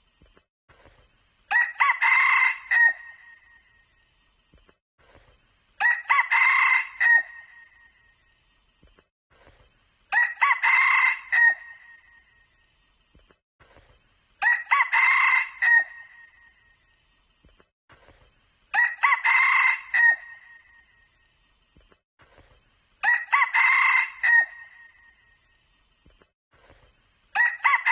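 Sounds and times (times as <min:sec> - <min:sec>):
rooster crowing: 0:01.5 - 0:03.2, 0:05.8 - 0:07.7, 0:10.1 - 0:12.0, 0:14.4 - 0:16.2, 0:18.8 - 0:20.6, 0:23.0 - 0:25.0, 0:27.4 - 0:27.9.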